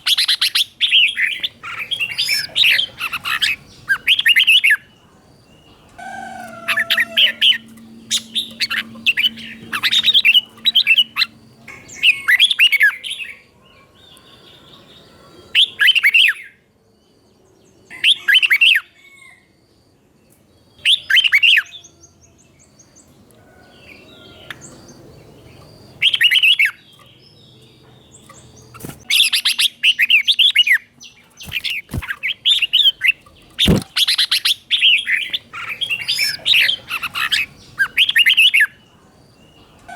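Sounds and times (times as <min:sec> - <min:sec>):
faint steady hum: 0:00.0 - 0:15.6
bird singing warbled phrases: 0:00.0 - 0:16.7, 0:20.6 - 0:23.2, 0:23.9 - 0:39.9.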